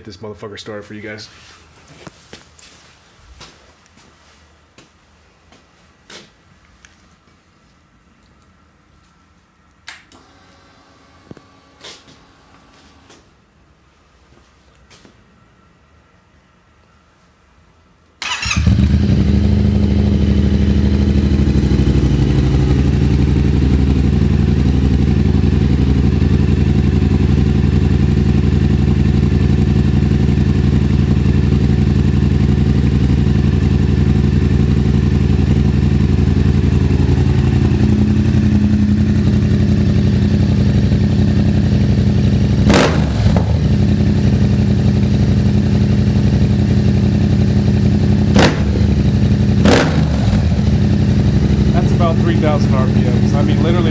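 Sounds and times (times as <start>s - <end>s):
motorcycle engine running: 18.2s - 53.9s.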